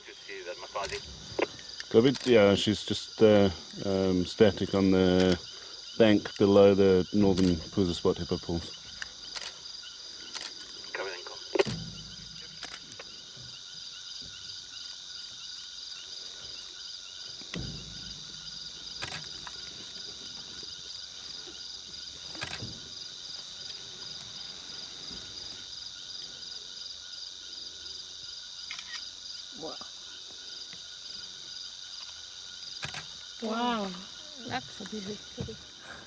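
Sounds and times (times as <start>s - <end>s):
insects trilling: 0.0s - 36.0s
faint knocks: 17.3s - 24.4s, 34.4s - 35.7s.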